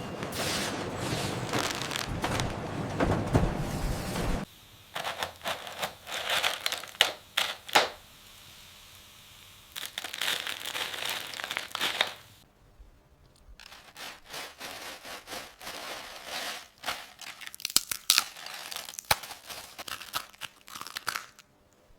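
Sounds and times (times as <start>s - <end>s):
plastic packaging crinkling: 1.0s - 3.6s, 5.0s - 8.0s, 9.7s - 12.4s, 13.6s - 21.5s.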